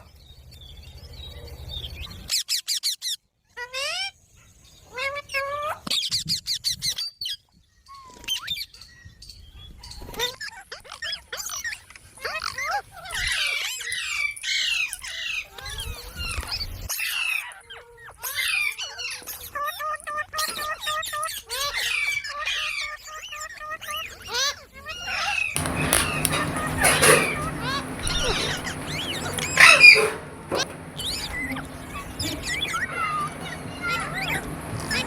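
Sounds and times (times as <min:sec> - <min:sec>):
parakeet squawking and chirping: 0:25.6 - 0:35.0.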